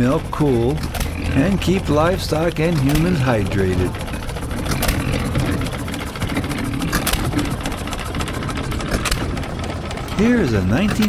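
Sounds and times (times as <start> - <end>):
small farm engine rumbling: 0.0 - 11.0
sharp clicks: 0.6 - 11.0.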